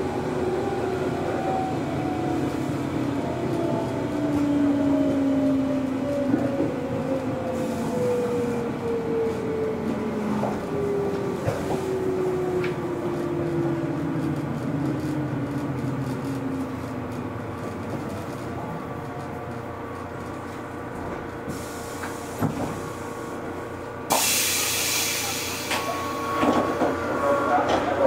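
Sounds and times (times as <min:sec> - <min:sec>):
train wheels rumbling on rail: 0:00.0 - 0:28.0
train motor whine: 0:00.1 - 0:28.0
hiss of air: 0:21.5 - 0:23.4, 0:24.1 - 0:25.8.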